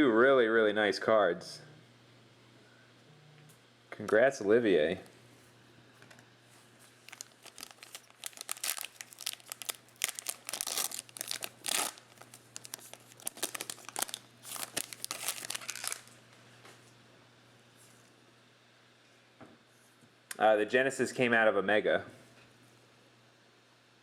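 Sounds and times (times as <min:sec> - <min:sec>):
faint low hum: 0:00.0 - 0:24.0
plastic wrappers crinkling: 0:06.8 - 0:16.2
wrapper being torn open: 0:07.0 - 0:16.2.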